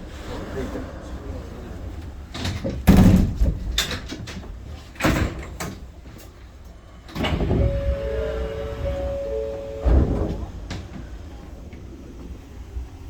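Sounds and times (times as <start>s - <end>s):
sliding doors knocking: 7.2s - 12.5s
steady tones: 7.5s - 12.0s.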